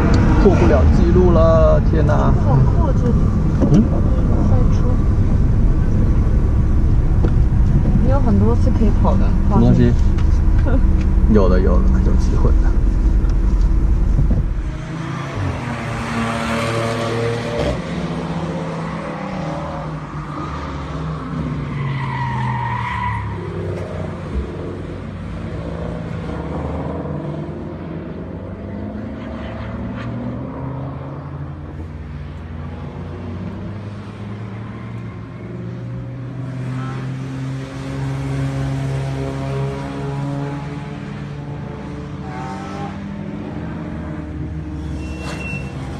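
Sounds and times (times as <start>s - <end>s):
car engine revving: 0.0s - 45.9s
high squeal: 44.7s - 45.8s.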